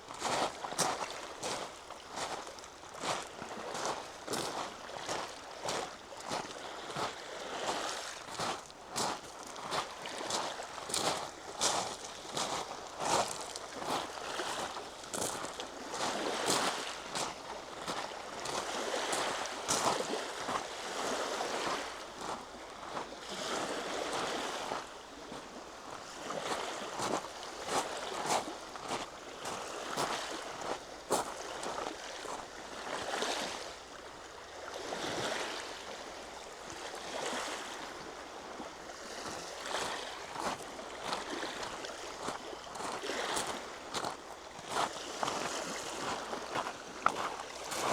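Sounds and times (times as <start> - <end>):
footsteps on outdoor trail: 42.2 - 47.9.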